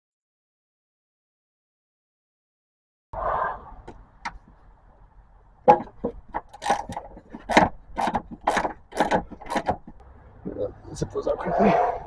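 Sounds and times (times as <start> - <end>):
hand ratchet clicking: 6.4 - 10.0.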